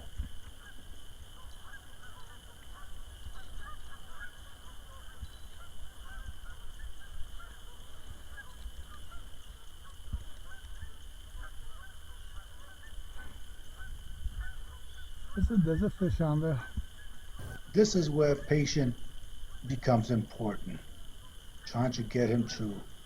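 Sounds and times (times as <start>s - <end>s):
wind rumbling on microphone: 0.0s - 17.8s
geese honking: 0.0s - 23.0s.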